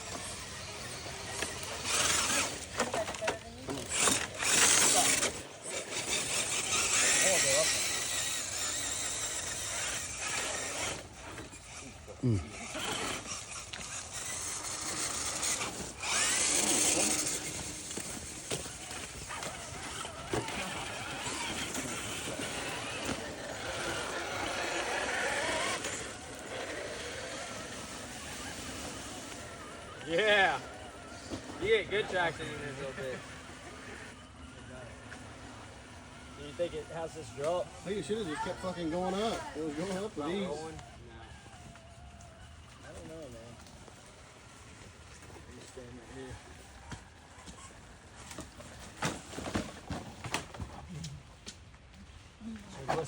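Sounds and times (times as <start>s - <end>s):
electric motor and gears whining: 0.0s - 51.0s.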